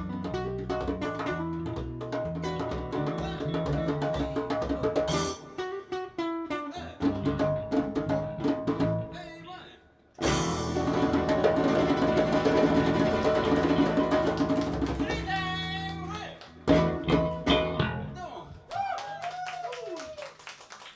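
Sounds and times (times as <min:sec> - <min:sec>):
acoustic band playing slow song: 0:00.0 - 0:09.2, 0:10.2 - 0:16.0, 0:16.6 - 0:18.1.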